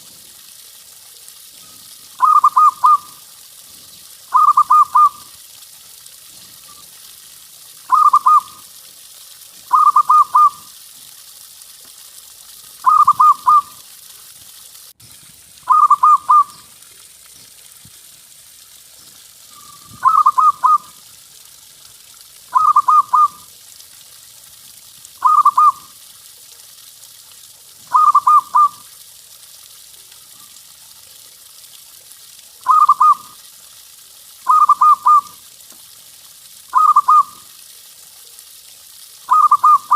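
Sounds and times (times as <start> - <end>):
faint steady hiss: 0.0 - 39.9
dove cooing: 2.2 - 3.1, 4.3 - 5.2, 7.9 - 8.6, 9.7 - 10.6, 12.8 - 13.8, 15.7 - 16.6, 19.6 - 20.9, 22.5 - 23.4, 25.2 - 25.8, 27.9 - 28.8, 32.6 - 33.3, 34.5 - 35.3, 36.7 - 37.4, 39.3 - 39.9.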